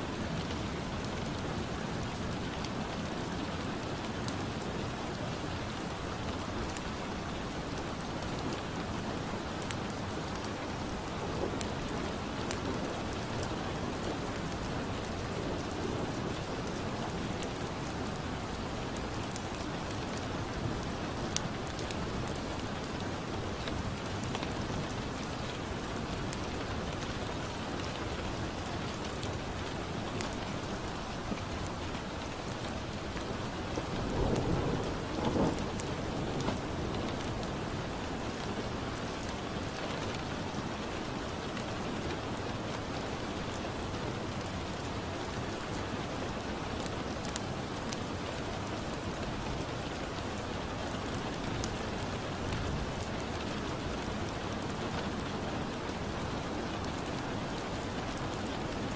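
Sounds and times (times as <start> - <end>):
steady rain: 0.0 - 58.9
wood fire crackling: 0.2 - 40.5, 41.1 - 58.7
thunder rumbling: 33.9 - 37.0.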